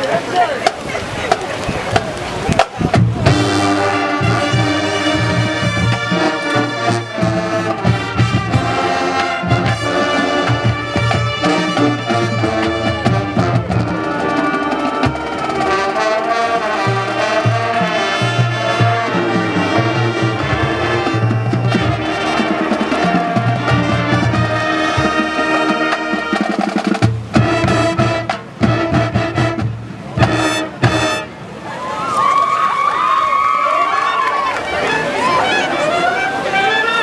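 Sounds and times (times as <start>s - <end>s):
live brass band music: 2.6s - 31.6s
bass line: 2.8s - 25.5s.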